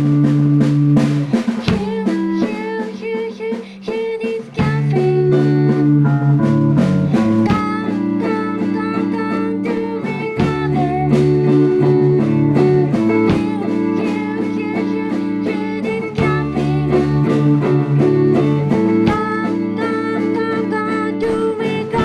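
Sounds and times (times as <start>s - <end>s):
drum hits: 0.0s - 22.0s
guitar chords: 0.0s - 22.0s
sustained low notes: 4.8s - 8.0s.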